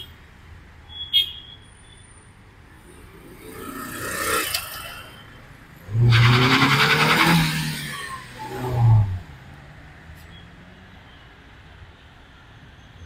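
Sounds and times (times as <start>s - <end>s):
motorcycle passing by: 2.8s - 5.1s, 5.9s - 9.3s
car accelerating past: 5.8s - 9.5s.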